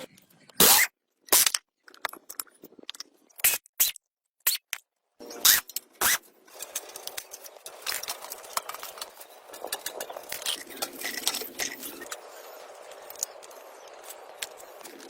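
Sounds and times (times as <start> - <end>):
hand tool clicks and scrapes: 0.1 - 15.0.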